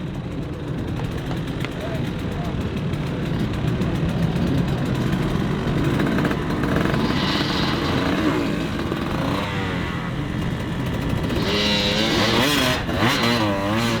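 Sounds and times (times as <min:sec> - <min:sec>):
dirt bike engine revving: 0:02.8 - 0:14.0.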